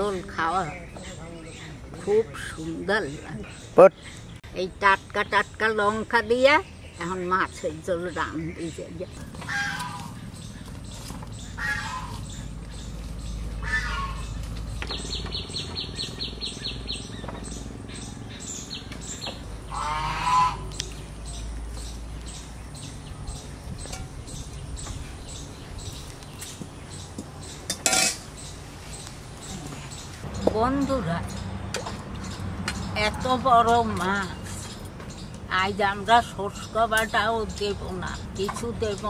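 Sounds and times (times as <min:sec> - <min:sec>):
birds calling: 0:00.0 - 0:39.0
metal cookware clank: 0:27.7 - 0:28.3.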